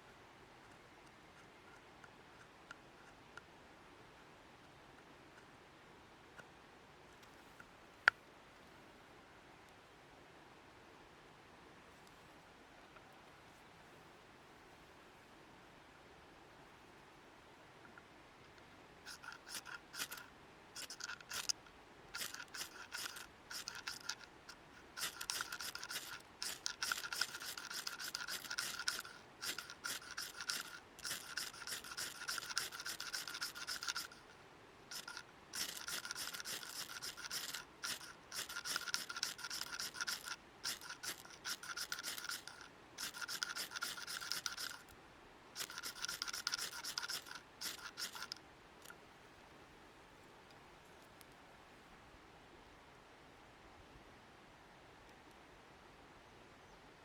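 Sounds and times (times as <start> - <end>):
rapid scraping strokes: 19.1 - 44.9, 45.6 - 48.9.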